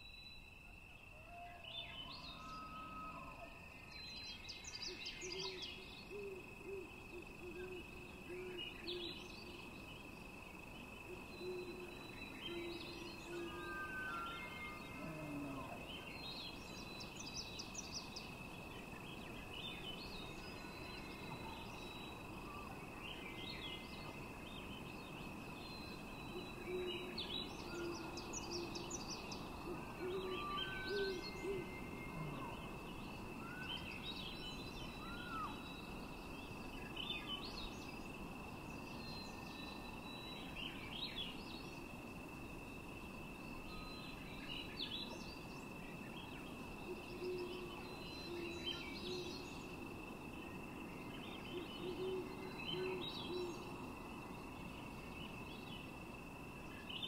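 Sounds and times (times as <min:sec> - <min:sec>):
faint hiss: 0:00.0 - 0:57.0
birds chirping and trilling: 0:10.2 - 0:38.0, 0:43.8 - 0:49.8, 0:51.0 - 0:53.7
low bird calls: 0:11.1 - 0:16.1, 0:25.9 - 0:35.9, 0:46.3 - 0:49.5, 0:51.2 - 0:53.7.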